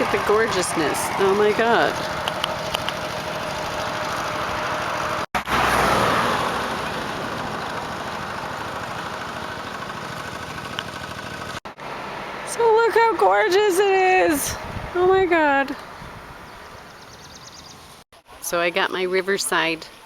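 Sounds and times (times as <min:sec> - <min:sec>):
motorbike engine running: 0:00.0 - 0:05.3, 0:05.9 - 0:11.6
road noise: 0:00.0 - 0:20.0
rushing wind: 0:11.9 - 0:18.0.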